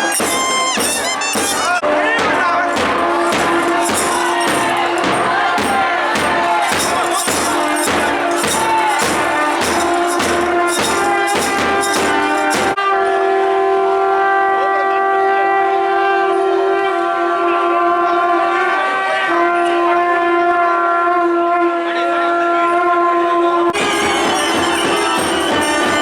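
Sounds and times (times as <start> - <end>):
double-reed pipes melody: 0.0 - 12.8, 23.8 - 26.0
drum strokes: 0.0 - 12.8, 23.8 - 26.0.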